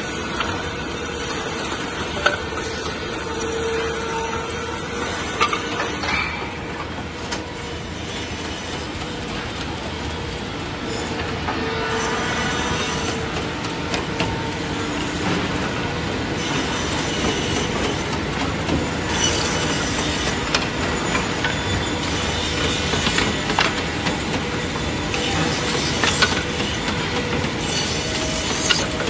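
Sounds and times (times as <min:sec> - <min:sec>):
scattered clicks and knocks: 0:00.0 - 0:11.7, 0:12.6 - 0:29.0
saw machine running: 0:00.0 - 0:29.0.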